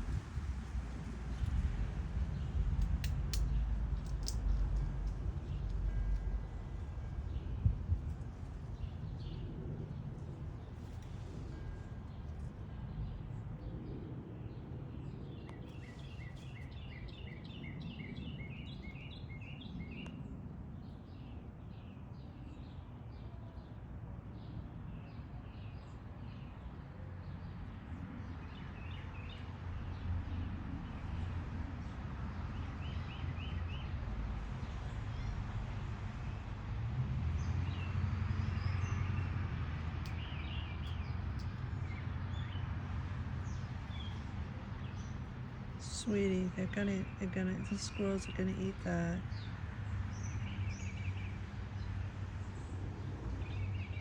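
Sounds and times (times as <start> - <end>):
low background rumble: 0.0 - 20.5
birds chirping: 43.4 - 54.0.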